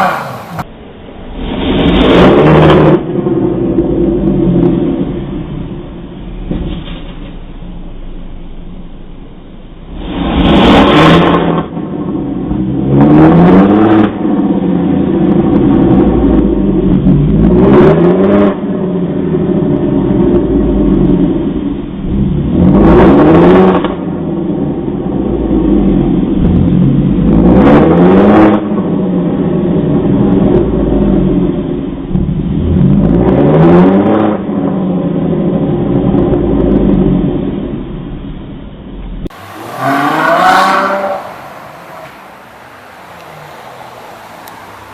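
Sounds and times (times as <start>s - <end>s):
car engine revving hard: 0.0s - 0.6s, 1.3s - 4.8s, 9.9s - 11.8s, 12.5s - 21.3s, 22.3s - 24.2s, 25.2s - 31.6s, 32.4s - 37.5s, 39.3s - 44.9s.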